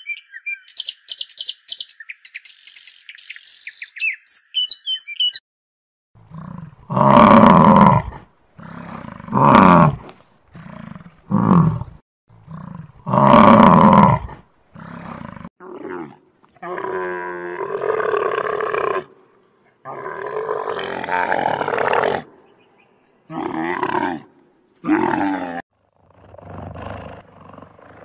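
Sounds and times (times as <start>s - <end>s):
camel grumbling: 19.8s - 22.3s, 23.3s - 28.0s.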